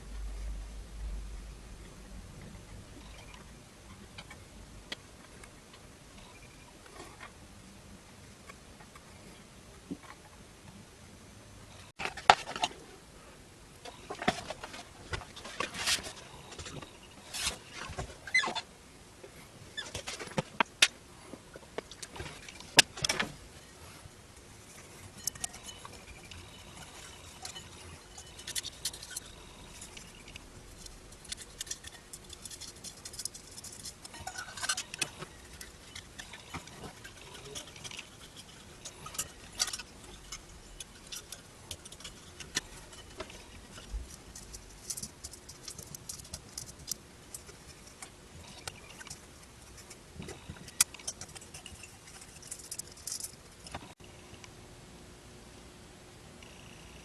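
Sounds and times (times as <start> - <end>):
small objects clicking and scraping: 24.6 - 54.0.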